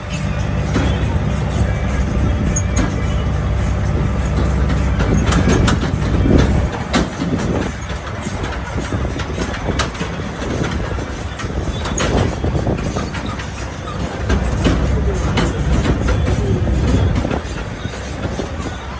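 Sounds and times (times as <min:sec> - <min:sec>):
knocks and rattles: 0:00.0 - 0:18.9
tractor engine rumbling: 0:00.0 - 0:18.9.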